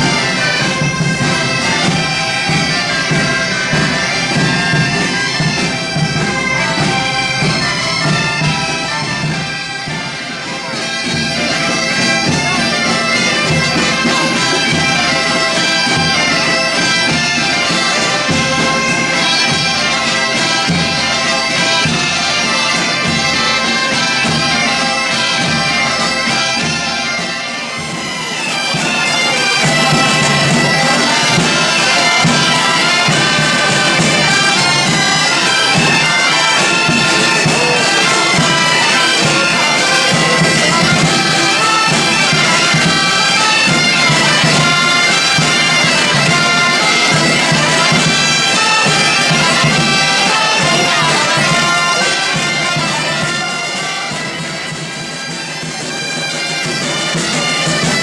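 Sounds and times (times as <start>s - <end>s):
band playing reedy wind instruments: 0.0s - 58.0s.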